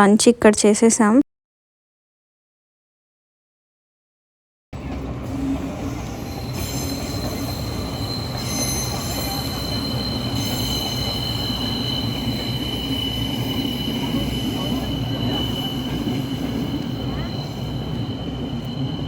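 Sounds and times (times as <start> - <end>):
train rumbling on rails: 4.8 - 19.0.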